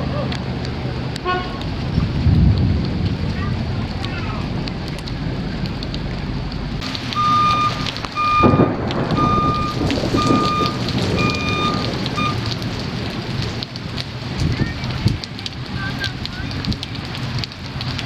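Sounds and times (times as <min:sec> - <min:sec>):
heavy rain hiss: 0:00.0 - 0:18.0
reversing alarm beeping: 0:07.1 - 0:12.5.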